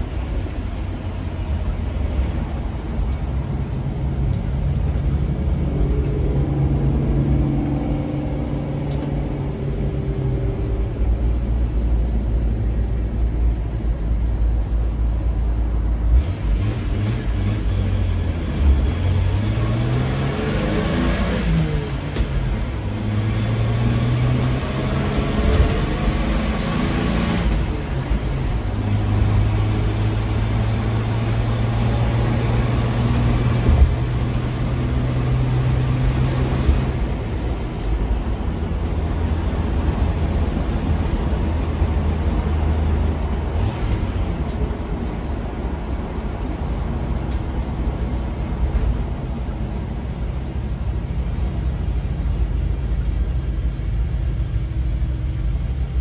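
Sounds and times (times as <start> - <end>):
car engine running: 0.0 - 16.2
road noise: 0.0 - 56.0.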